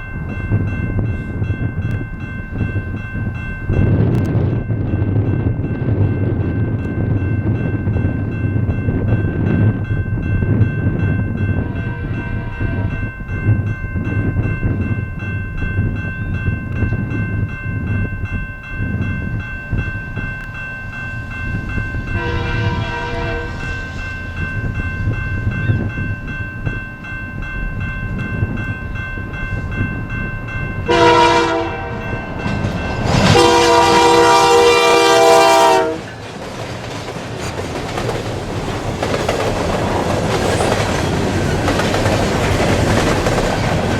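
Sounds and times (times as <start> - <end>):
train rumble and clatter: 0.0 - 43.9
locomotive horn blasts: 11.6 - 13.1, 22.2 - 23.8, 30.9 - 32.2, 33.2 - 36.2.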